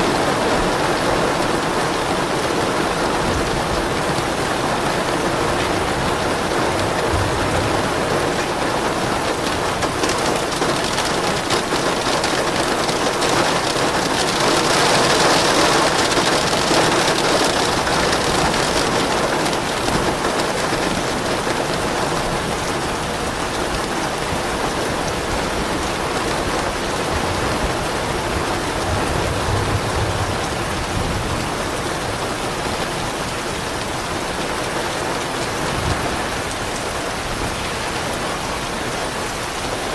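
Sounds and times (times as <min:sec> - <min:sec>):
heavy rain pattering: 0:00.0 - 0:39.9
distant thunder rumbling: 0:02.2 - 0:21.2, 0:26.4 - 0:33.2.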